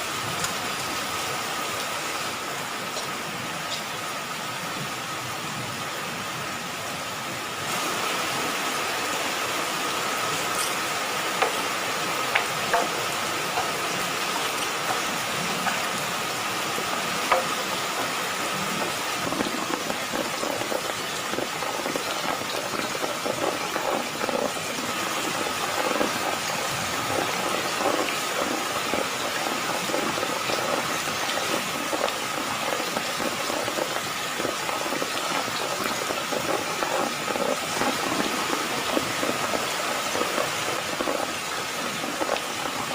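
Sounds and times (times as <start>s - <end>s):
heavy rain pouring: 0.0s - 42.9s
raindrops ticking: 9.9s - 42.9s.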